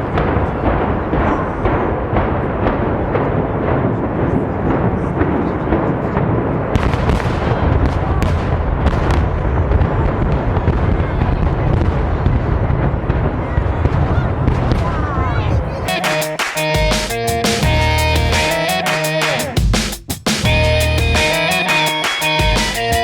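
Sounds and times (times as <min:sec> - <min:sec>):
sharp bangs: 0:00.0 - 0:15.1, 0:15.9 - 0:23.0
explosive charges cracking: 0:00.0 - 0:15.2.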